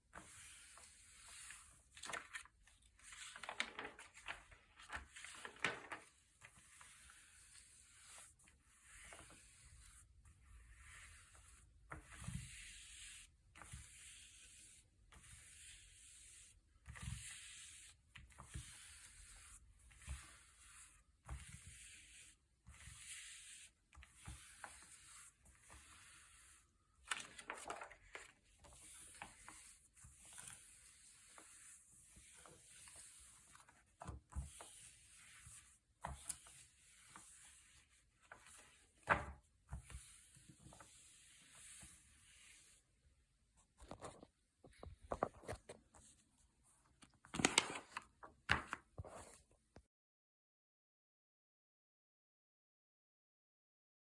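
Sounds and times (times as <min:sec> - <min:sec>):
glossy paper pages turning: 0:00.7 - 0:06.2, 0:25.9 - 0:31.7, 0:47.0 - 0:49.4.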